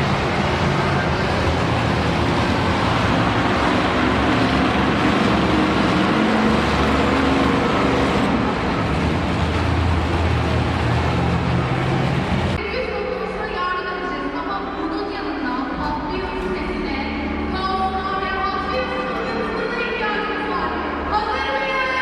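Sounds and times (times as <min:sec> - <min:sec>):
monster truck engine running: 0:00.0 - 0:12.6.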